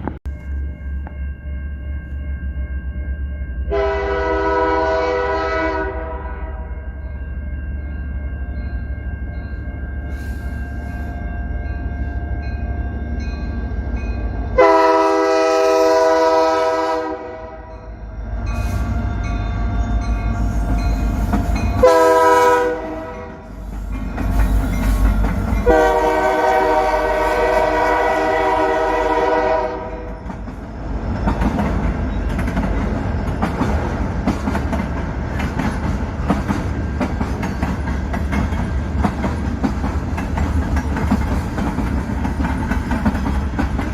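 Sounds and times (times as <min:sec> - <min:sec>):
diesel locomotive rumbling: 0:00.0 - 0:43.9
train horn: 0:03.7 - 0:06.7, 0:14.6 - 0:17.9, 0:21.8 - 0:23.5, 0:25.6 - 0:30.2
wheels clickety-clack on rails: 0:18.6 - 0:43.9.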